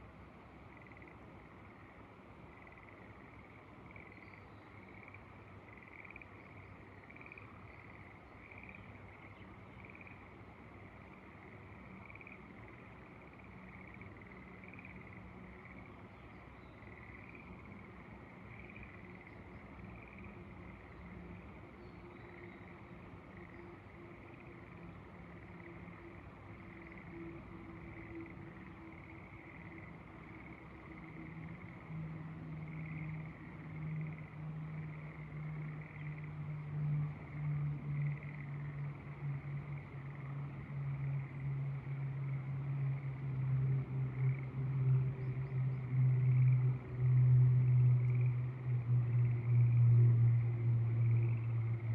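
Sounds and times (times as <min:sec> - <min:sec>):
frogs calling: 0:00.6 - 0:51.9
engine hum: 0:27.8 - 0:51.9.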